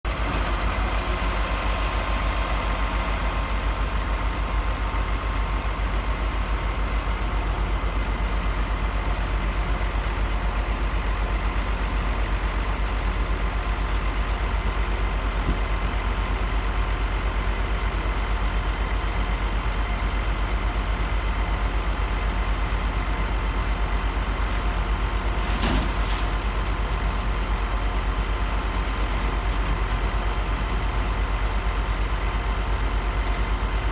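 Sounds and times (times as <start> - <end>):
heavy farm engine running: 0.0 - 33.9
brief clank: 25.5 - 26.4.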